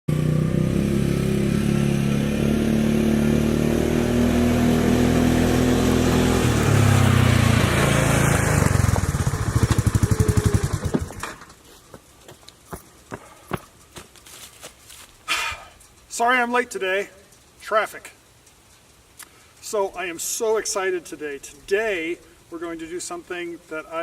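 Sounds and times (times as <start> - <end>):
small engine running and stopping: 0.1 - 11.6
faint clicks: 18.2 - 19.8.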